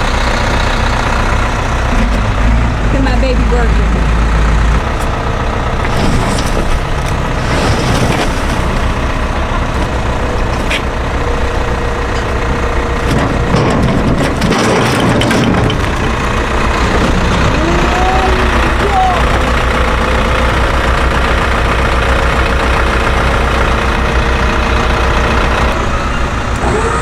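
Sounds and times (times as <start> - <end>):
heavy vehicle engine running: 0.0 - 27.0
logs knocking and cracking: 5.8 - 17.5.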